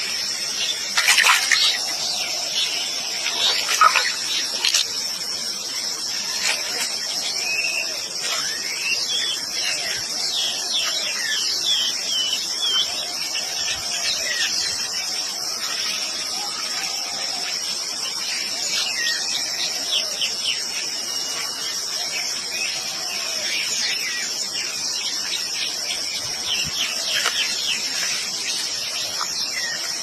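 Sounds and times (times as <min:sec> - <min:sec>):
insect chorus: 0:00.0 - 0:30.0.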